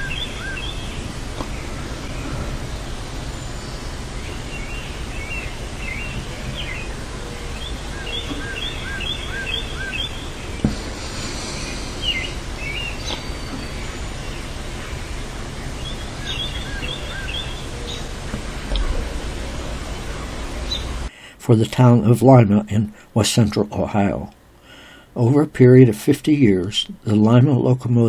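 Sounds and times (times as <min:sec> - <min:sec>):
low background rumble: 0:00.0 - 0:21.1
birds chirping: 0:00.0 - 0:21.3.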